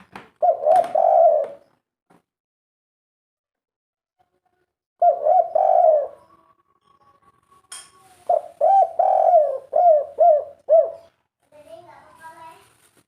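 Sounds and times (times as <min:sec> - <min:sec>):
dove cooing: 0:00.4 - 0:01.6, 0:05.0 - 0:06.5, 0:08.2 - 0:11.1.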